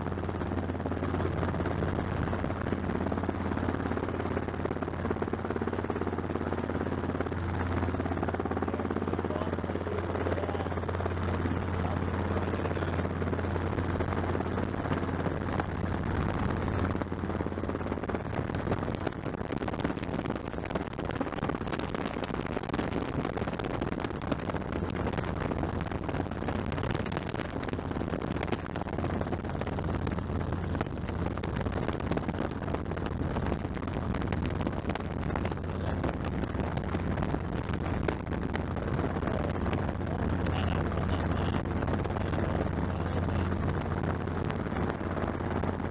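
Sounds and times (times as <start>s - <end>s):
helicopter rotor and engine drone: 0.0s - 19.4s, 38.8s - 44.0s.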